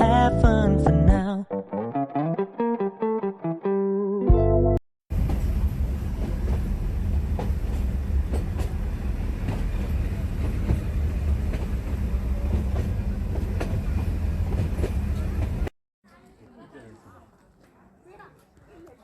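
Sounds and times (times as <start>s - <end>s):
train rumbling on track: 5.1s - 15.7s.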